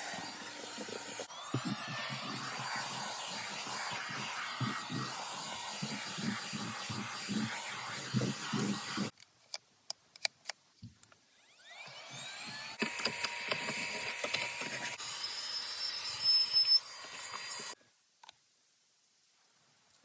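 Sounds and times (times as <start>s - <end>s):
handheld vacuum cleaner whining: 0.0s - 9.1s, 11.4s - 17.8s.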